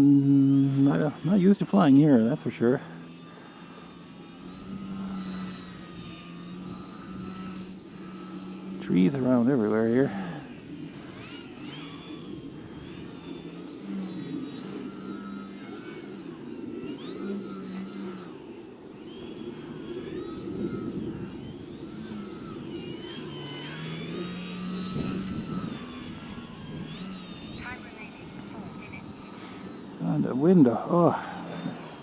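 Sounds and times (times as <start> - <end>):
model plane motor whine: 0.0 - 32.0
wind noise on microphone: 24.8 - 27.8.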